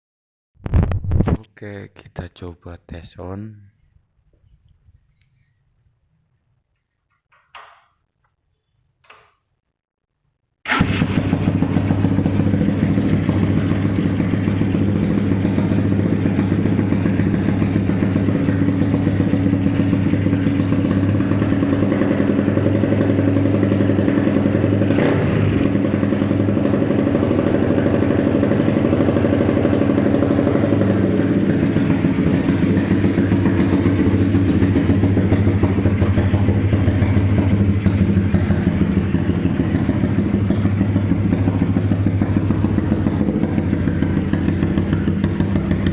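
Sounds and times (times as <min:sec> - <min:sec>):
motorcycle engine starting and idling: 0:10.7 - 0:45.9.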